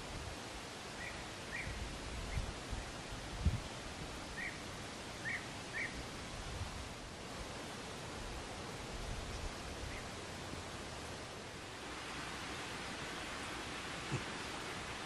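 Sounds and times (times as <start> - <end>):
outdoor hiss: 0.0 - 15.0
small bird chirping: 5.2 - 6.0.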